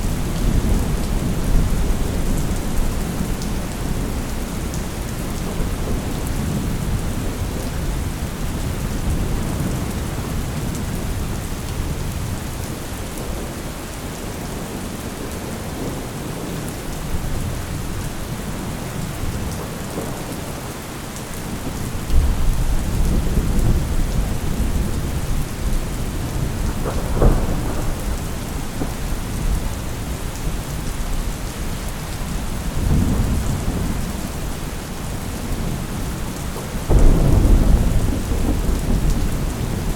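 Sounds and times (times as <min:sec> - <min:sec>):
heavy rain: 0:00.0 - 0:39.9
rolling thunder: 0:21.6 - 0:31.2, 0:32.2 - 0:39.9
sharp thunder crack: 0:26.3 - 0:29.5, 0:36.9 - 0:39.9.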